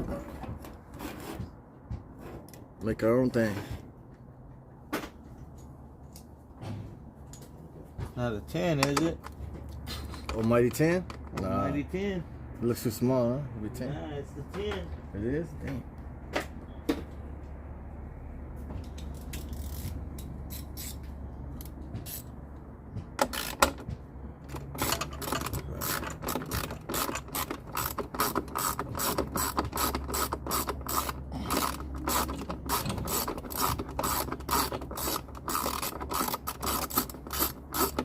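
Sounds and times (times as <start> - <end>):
ratchet wrench clicking: 19.0 - 22.3, 23.2 - 23.9, 24.5 - 38.0.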